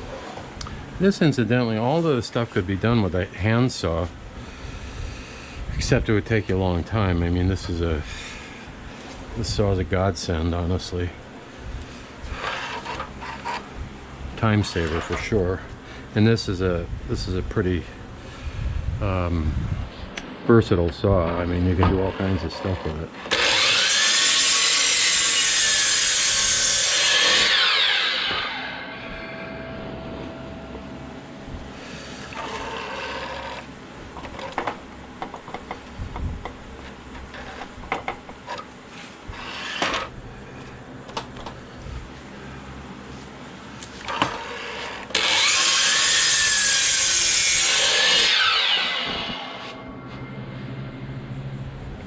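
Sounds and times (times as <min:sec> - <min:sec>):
power saw cutting wood: 0:12.2 - 0:13.7, 0:21.3 - 0:30.9, 0:31.7 - 0:34.5, 0:39.3 - 0:40.1, 0:44.0 - 0:49.9.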